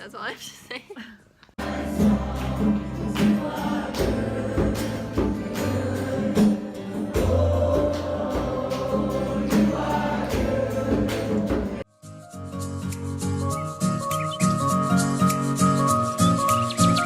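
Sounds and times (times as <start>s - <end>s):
choir singing gospel music: 1.6s - 11.9s.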